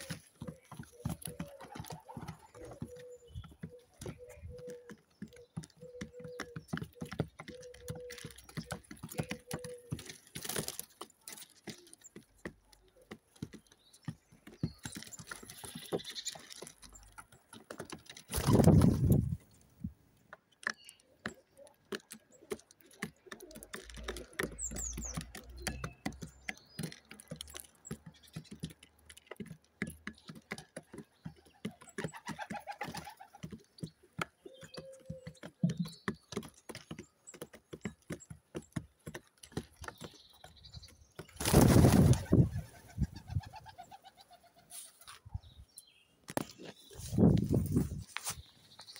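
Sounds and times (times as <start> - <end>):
pigeons cooing: 0.0 - 10.1
pigeons pecking at food: 0.0 - 48.9.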